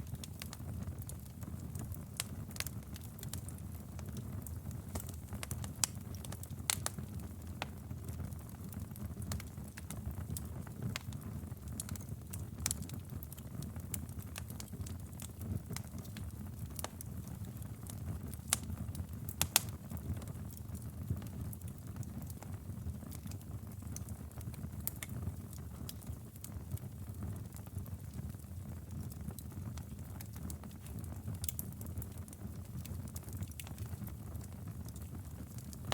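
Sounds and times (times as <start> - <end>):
fire crackling and popping: 0.0 - 35.9
low rumble of flames: 0.0 - 35.9.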